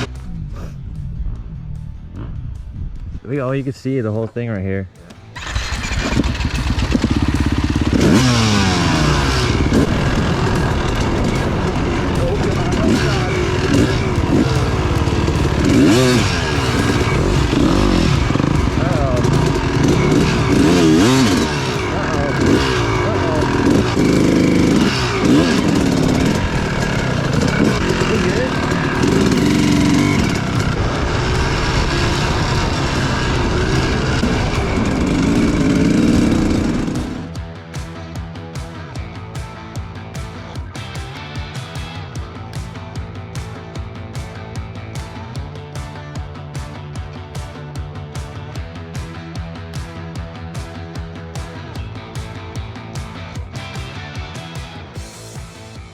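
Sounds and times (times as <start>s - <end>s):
dirt bike engine revving: 0.0s - 0.6s, 5.1s - 38.2s.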